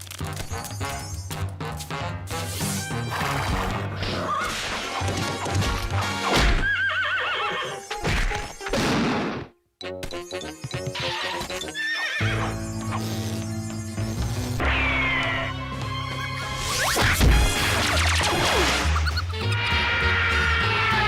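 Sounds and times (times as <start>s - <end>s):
horse whinnying: 6.4s - 8.0s, 10.9s - 13.0s
cartoon score music: 7.7s - 21.0s.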